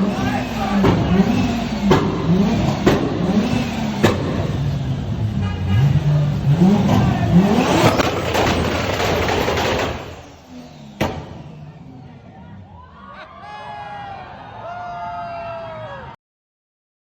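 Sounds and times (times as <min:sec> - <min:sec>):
car engine revving in blips: 0:00.0 - 0:12.6
exhaust pops: 0:00.3 - 0:04.9, 0:05.9 - 0:11.8.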